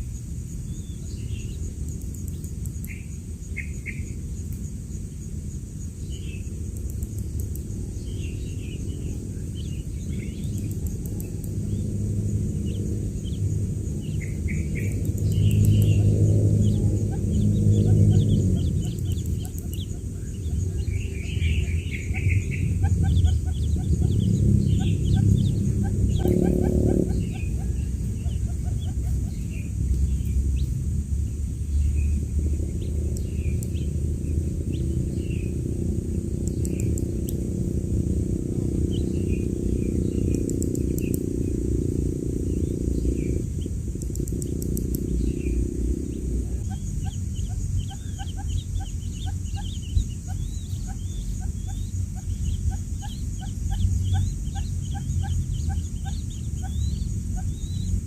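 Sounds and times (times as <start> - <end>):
loud steady low hum: 0.0 - 58.0
chicks peeping: 6.9 - 30.8, 42.5 - 58.0.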